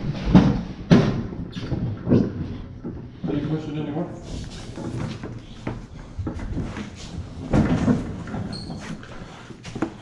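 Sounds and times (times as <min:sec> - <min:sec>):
refrigerator scraping and knocking: 0:00.0 - 0:10.0.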